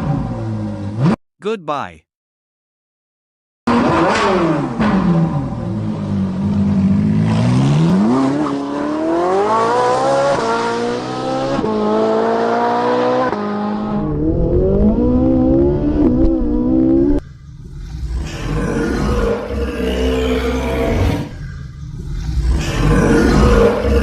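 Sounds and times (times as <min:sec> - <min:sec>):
vehicle engine accelerating: 0:03.7 - 0:24.0.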